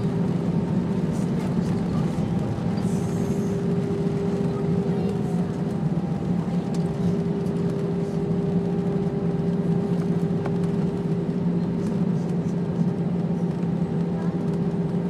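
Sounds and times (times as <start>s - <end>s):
airplane cabin rumble: 0.0s - 15.0s
two-tone engine hum: 0.0s - 15.0s.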